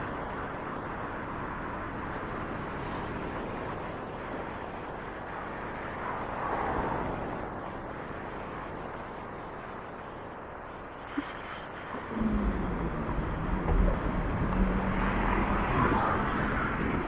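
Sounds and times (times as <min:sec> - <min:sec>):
city road traffic: 0:00.0 - 0:17.0
vehicle passing: 0:11.9 - 0:17.0.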